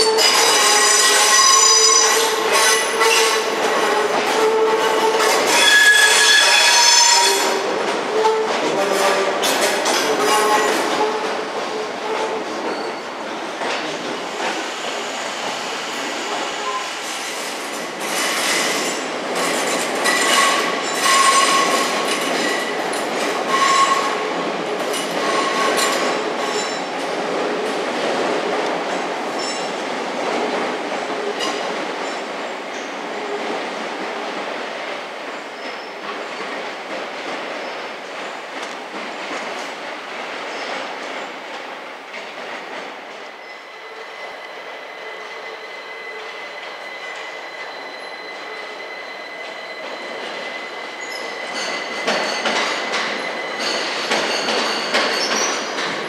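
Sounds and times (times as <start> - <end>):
high-pitched flange squeals: 4.4 - 7.6, 43.4 - 52.4.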